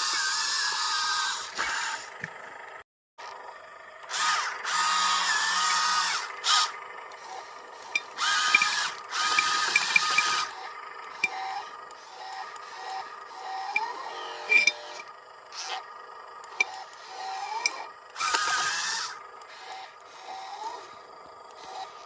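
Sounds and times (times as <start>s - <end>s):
electric motors whining: 0.0s - 22.0s
low-pitched motor whirs: 0.0s - 22.0s
small clicks: 16.4s - 18.8s.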